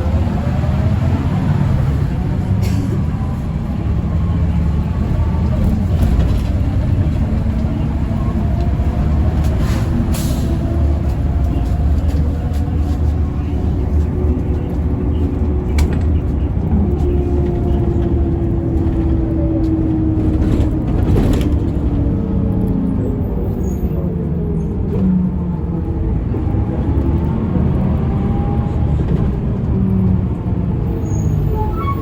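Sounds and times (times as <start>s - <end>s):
bus engine and road drone: 0.0s - 32.0s.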